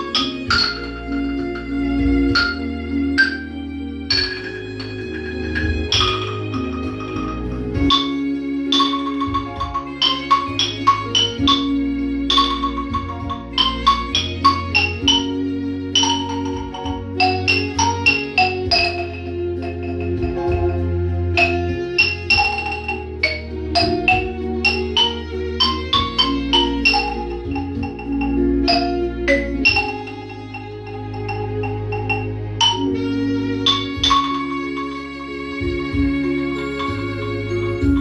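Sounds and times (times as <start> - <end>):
sustained accompaniment with bass: 0.0 - 38.0
xylophone melody: 0.0 - 38.0.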